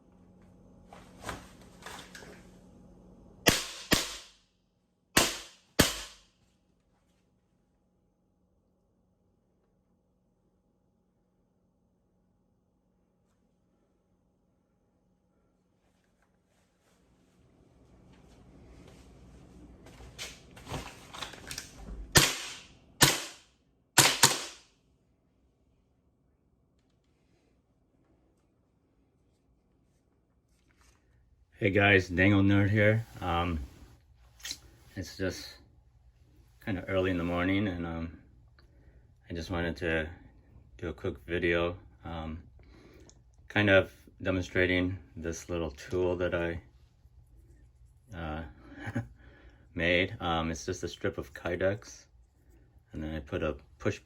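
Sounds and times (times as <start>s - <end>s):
airsoft pistol shots: 3.5s - 4.4s, 5.2s - 6.3s, 22.1s - 24.7s.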